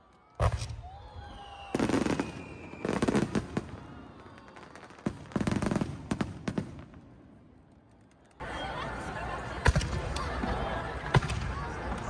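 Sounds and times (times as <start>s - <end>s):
falling firework whistle: 0.4s - 5.4s.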